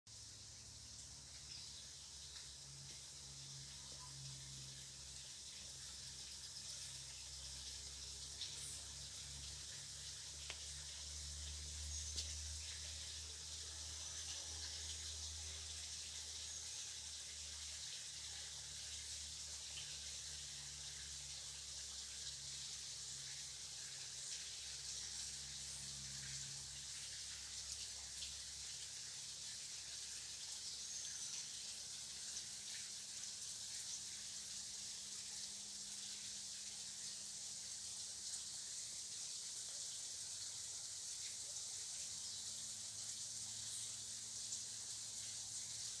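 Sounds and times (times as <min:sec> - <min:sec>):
steady high hiss: 0:00.1 - 0:46.0
faint bird chirps: 0:03.4 - 0:04.6, 0:30.7 - 0:31.8.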